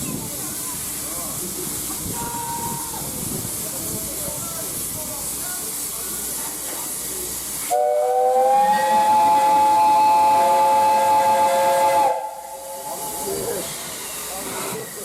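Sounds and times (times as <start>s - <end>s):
steam hissing: 0.0s - 15.0s
steam locomotive whistle: 2.2s - 3.0s, 7.7s - 13.3s.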